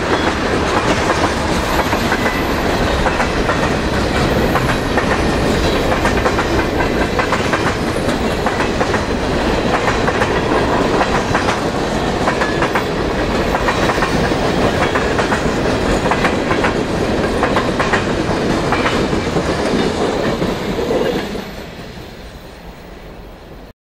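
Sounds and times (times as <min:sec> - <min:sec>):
freight train wheels clattering: 0:00.0 - 0:21.8.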